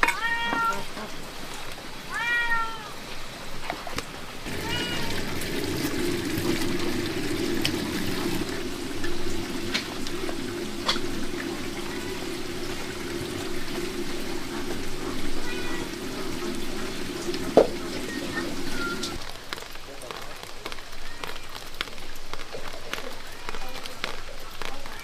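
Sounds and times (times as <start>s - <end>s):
cat meow: 0.0s - 1.0s, 2.1s - 3.0s, 4.5s - 5.3s, 15.3s - 16.0s, 18.3s - 19.2s, 20.9s - 21.6s
water pouring: 4.4s - 25.0s.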